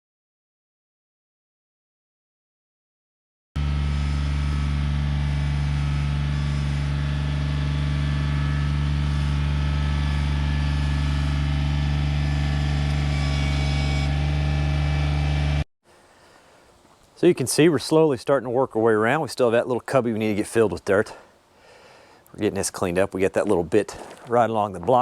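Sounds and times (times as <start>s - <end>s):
tractor diesel engine running: 3.6s - 15.6s.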